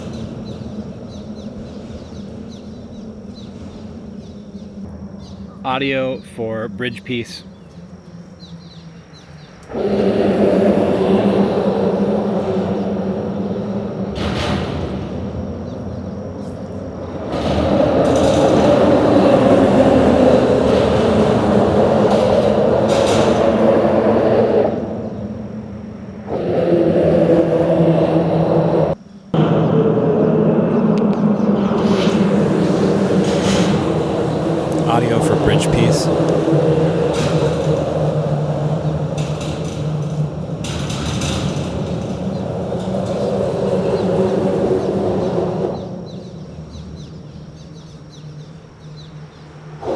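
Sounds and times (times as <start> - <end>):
passing traffic hiss: 31.8 - 36.5.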